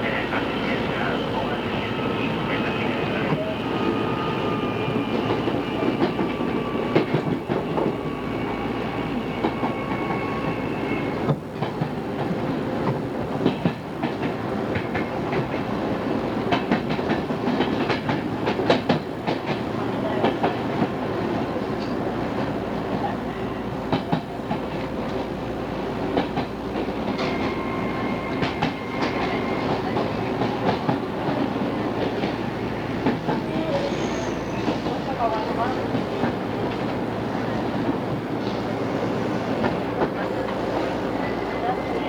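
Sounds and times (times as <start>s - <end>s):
electric train whine: 0.0s - 11.4s, 23.2s - 42.0s.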